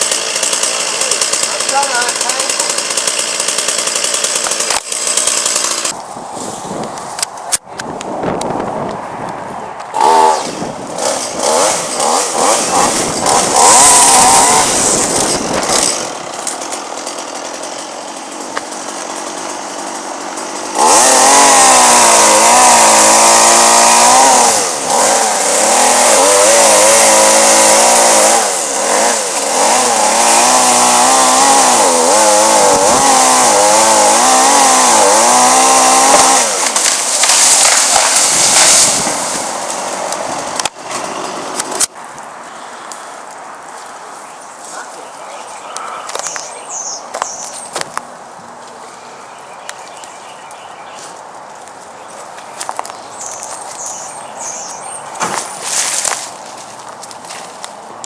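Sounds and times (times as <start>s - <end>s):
chainsaw revving and cutting wood: 0.0s - 6.0s, 9.9s - 42.0s.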